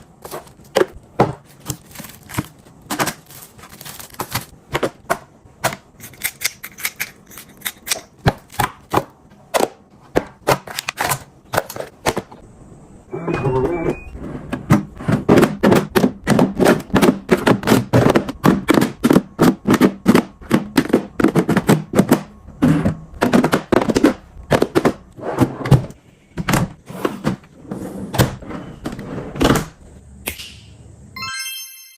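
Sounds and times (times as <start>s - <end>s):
containers knocking and clacking: 14.6s - 25.1s.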